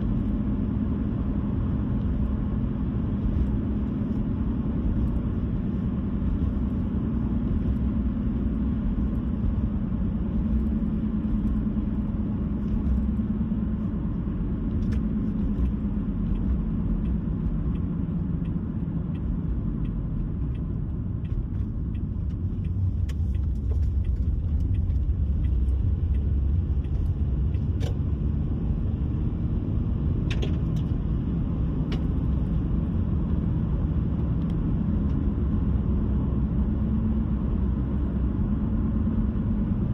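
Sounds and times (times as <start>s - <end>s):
car engine and tyre rumble: 0.0s - 39.9s
faint ticks: 14.7s - 28.0s.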